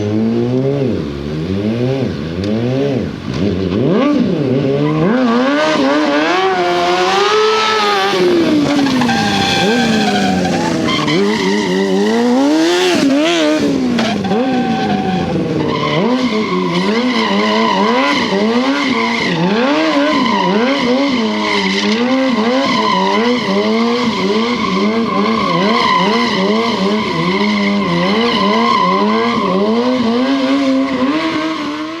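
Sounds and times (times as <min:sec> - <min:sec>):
motorcycle engine revving: 0:00.0 - 0:32.0
tyre squealing on pavement: 0:04.6 - 0:32.0.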